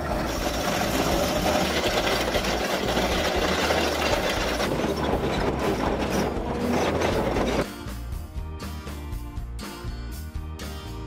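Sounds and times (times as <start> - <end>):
machine engine running: 0.0 - 7.7
rock wheel grinding rock: 0.0 - 7.7.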